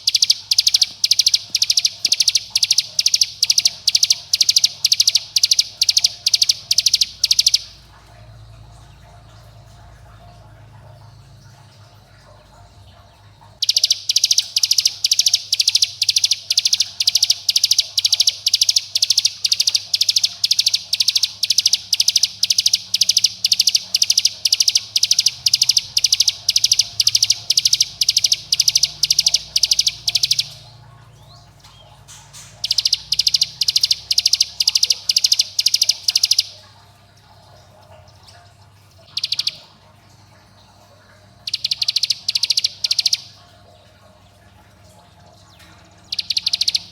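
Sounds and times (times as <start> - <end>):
prinia rapid high call: 0.0 - 7.9, 13.6 - 30.8, 32.0 - 36.7, 39.0 - 39.7, 41.4 - 43.4, 46.0 - 46.9.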